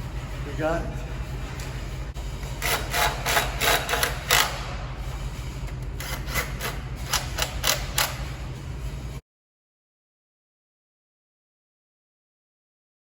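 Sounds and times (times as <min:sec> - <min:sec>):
metal scraping strokes: 0:00.0 - 0:09.2
steady low hum: 0:00.0 - 0:09.2.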